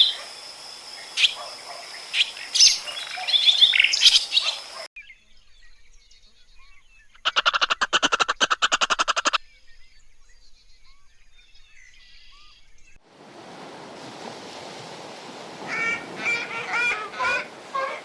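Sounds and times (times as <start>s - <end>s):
faint bird chirps: 2.0s - 13.0s
animal rattling call: 7.2s - 9.4s.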